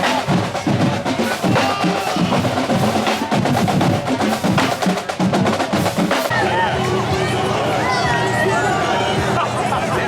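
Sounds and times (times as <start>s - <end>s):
marching drumline playing: 0.0s - 6.9s.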